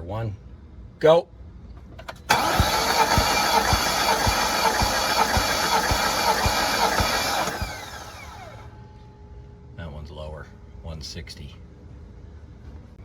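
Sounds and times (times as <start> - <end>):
engine cranking on starter motor: 2.0 - 8.7
starter winding down whine: 2.3 - 8.8.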